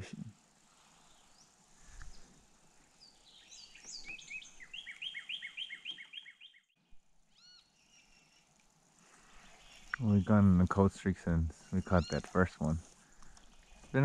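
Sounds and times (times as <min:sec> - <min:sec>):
songbird whistling song: 0:03.0 - 0:08.4
short bird chirps: 0:03.0 - 0:08.5, 0:09.2 - 0:10.3.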